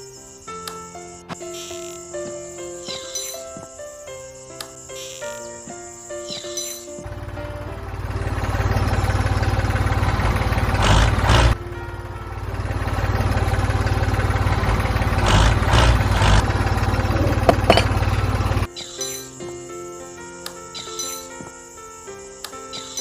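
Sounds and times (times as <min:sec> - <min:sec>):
small motor rumbling: 0:06.9 - 0:18.7.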